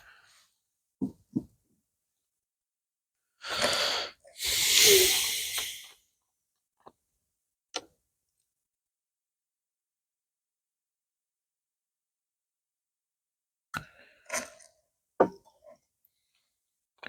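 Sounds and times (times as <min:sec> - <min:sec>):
person breathing: 0:03.5 - 0:05.9
voiced sigh: 0:04.4 - 0:05.9.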